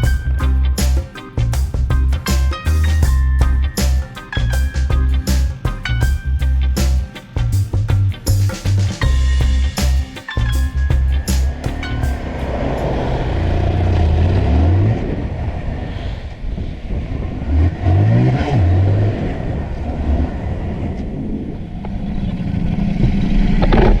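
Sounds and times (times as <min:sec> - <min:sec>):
road and wind noise: 0:00.0 - 0:24.0
vehicle engine accelerating: 0:08.8 - 0:15.5.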